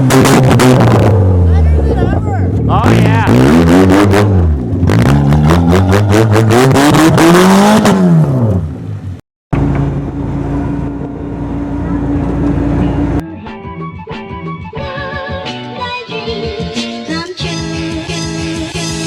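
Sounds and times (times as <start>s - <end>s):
car engine revving: 0.0s - 13.2s.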